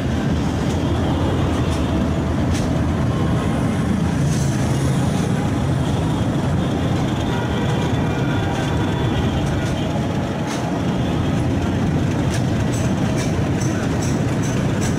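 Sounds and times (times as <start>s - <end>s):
train rumbling along track: 0.0s - 14.9s
train wheel clicks: 0.1s - 3.0s, 8.5s - 14.9s.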